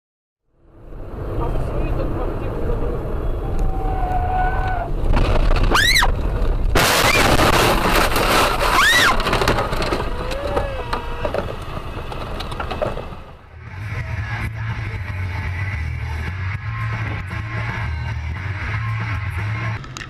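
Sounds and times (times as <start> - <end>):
tyre squeals: 3.2 - 5.0, 5.6 - 6.2, 8.4 - 13.0
loud crunching crash: 4.8 - 13.4.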